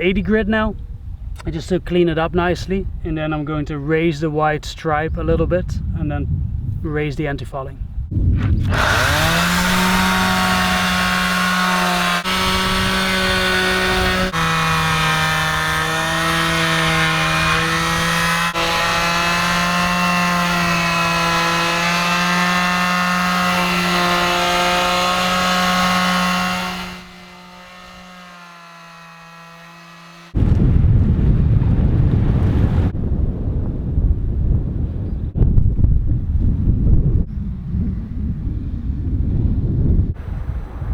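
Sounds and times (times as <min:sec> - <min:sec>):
wind noise on microphone: 0:00.0 - 0:28.1, 0:30.4 - 0:40.9
power sander on boat hull: 0:08.6 - 0:30.4.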